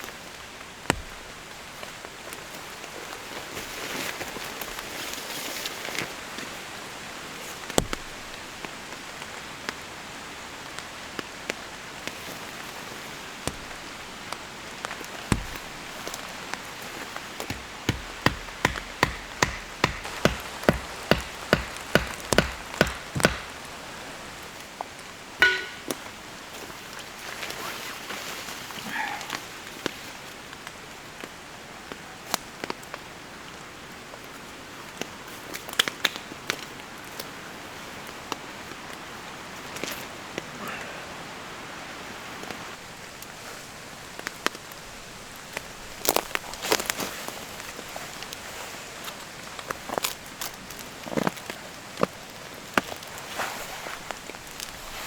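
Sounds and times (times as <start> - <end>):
steady rain falling: 0.0 - 55.0
sharp strikes: 25.4 - 26.0.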